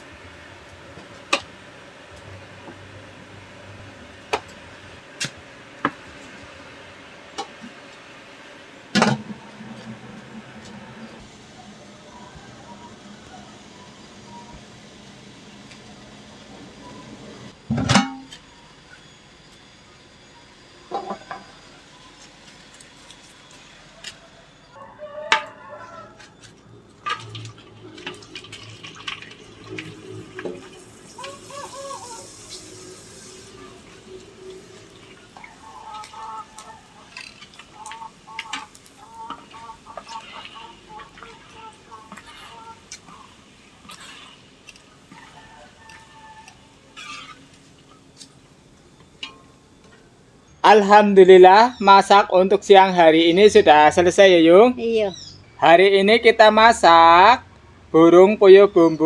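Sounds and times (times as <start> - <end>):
faint steady background noise: 0.0 - 59.0
water running and splashing: 27.0 - 47.9
chicken clucking: 31.0 - 32.6, 35.2 - 47.4.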